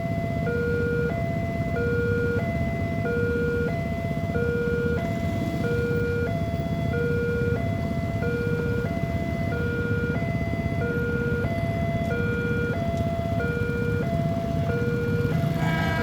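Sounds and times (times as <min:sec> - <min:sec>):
level crossing two-tone alarm: 0:00.0 - 0:16.0
continuous low rumble: 0:09.6 - 0:16.0.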